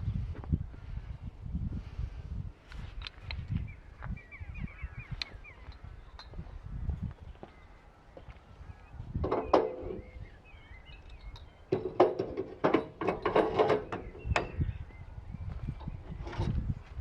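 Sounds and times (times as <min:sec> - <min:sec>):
faint birds chirping: 0:00.0 - 0:17.0
metal parts clanking: 0:11.7 - 0:14.6.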